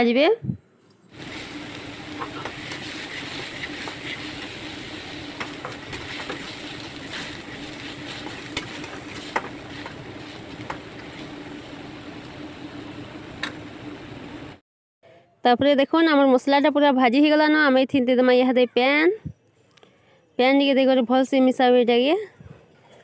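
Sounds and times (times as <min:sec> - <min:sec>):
paste sizzling in oil: 0:01.1 - 0:12.3.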